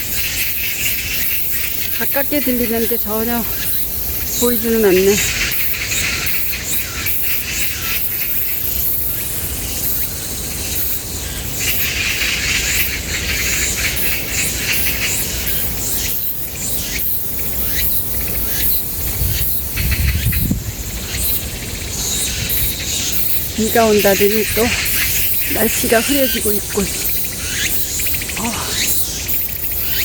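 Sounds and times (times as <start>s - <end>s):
insects buzzing: 0.0s - 30.0s
bird calls: 0.2s - 8.6s, 21.1s - 30.0s.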